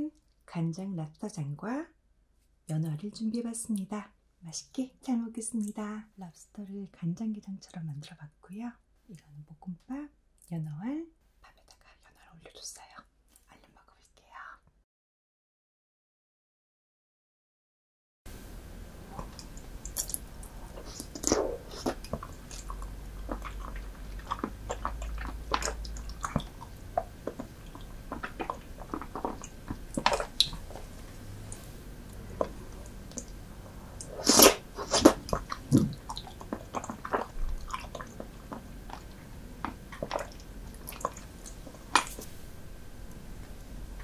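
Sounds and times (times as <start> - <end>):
wet mouth chewing and smacking: 19.2 - 33.4, 34.0 - 42.3.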